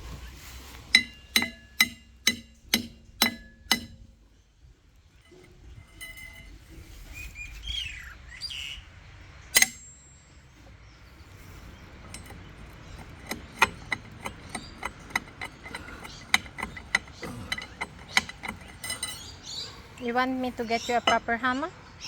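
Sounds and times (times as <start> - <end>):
light metal taps and clinks: 0.9 - 4.1, 5.2 - 6.6, 12.0 - 19.6
bird chirping: 4.3 - 22.0.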